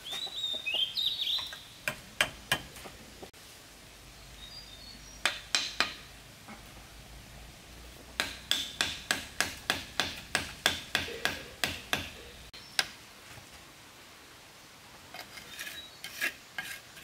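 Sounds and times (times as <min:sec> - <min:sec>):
sharp knocks: 0:08.2 - 0:12.2.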